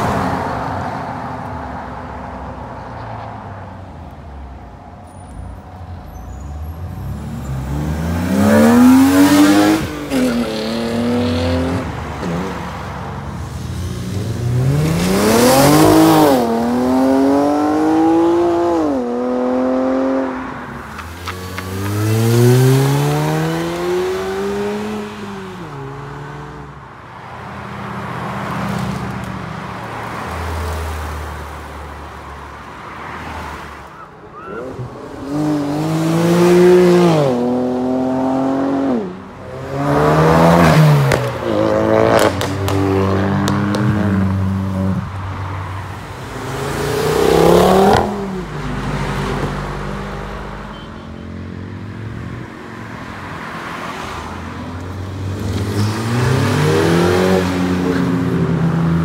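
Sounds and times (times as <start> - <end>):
sports cars accelerating hard: 7.1 - 12.8, 34.4 - 45.2, 46.2 - 50.3, 55.2 - 59.0.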